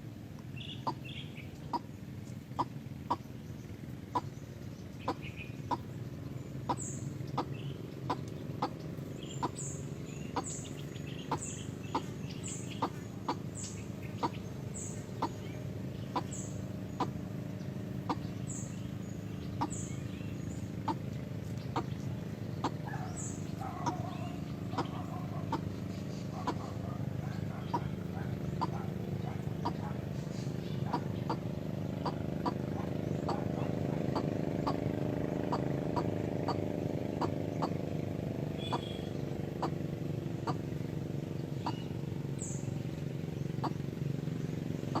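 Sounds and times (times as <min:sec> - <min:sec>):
steady low hum: 0:00.0 - 0:45.0
bird calling sharply: 0:05.0 - 0:05.9, 0:06.6 - 0:17.2, 0:18.0 - 0:34.8, 0:38.5 - 0:39.8, 0:41.6 - 0:42.6.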